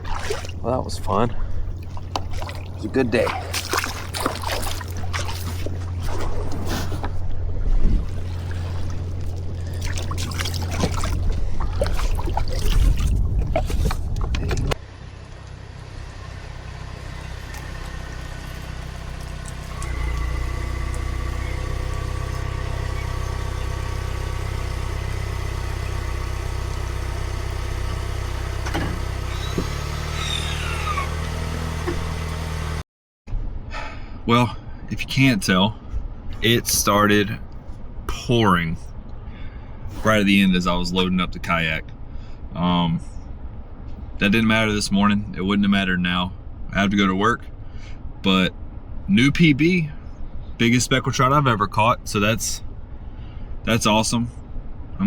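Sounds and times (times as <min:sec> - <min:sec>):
low rumble: 0:00.0 - 0:25.7
vehicle engine running inside cabin: 0:00.0 - 0:32.8.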